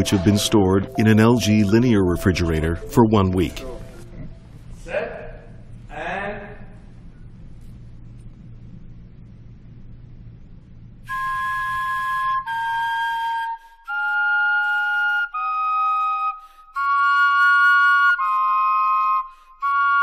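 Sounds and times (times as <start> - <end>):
vegetable wind instruments playing: 0.0 - 4.6, 11.1 - 20.0
low hum: 0.0 - 12.8.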